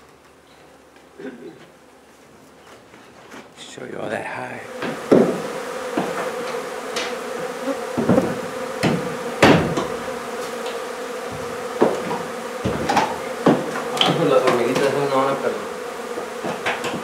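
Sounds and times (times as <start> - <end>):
honey bees buzzing: 3.6 - 17.0
sharp knocks: 4.8 - 15.1, 16.2 - 17.0.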